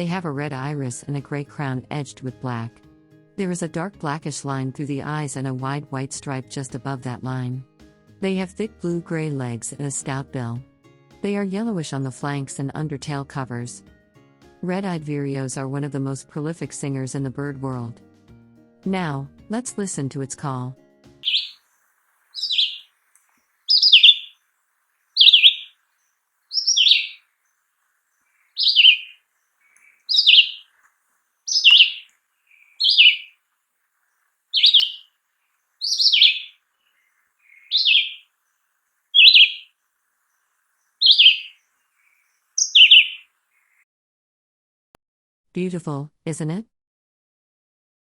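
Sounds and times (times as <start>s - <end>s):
bird singing whistled phrases: 21.2s - 21.6s, 22.4s - 22.9s, 23.7s - 24.4s, 25.2s - 25.8s, 26.5s - 27.2s, 28.6s - 29.2s, 29.8s - 30.7s, 31.5s - 33.3s, 34.6s - 35.1s, 35.8s - 36.6s, 37.5s - 38.2s, 39.1s - 39.7s, 41.0s - 41.6s, 42.6s - 43.2s.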